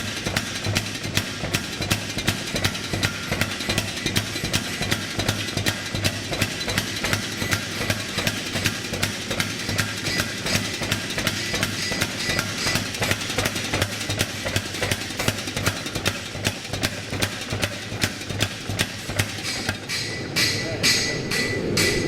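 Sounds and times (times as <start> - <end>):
power hammer striking hot steel: 0.0 - 22.0.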